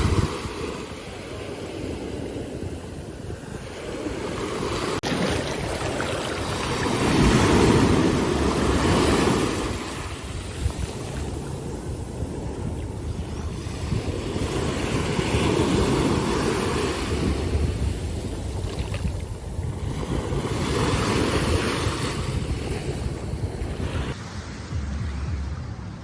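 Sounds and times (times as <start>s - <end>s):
ocean surf on beach: 0.0s - 26.0s
wind on microphone: 0.0s - 26.0s.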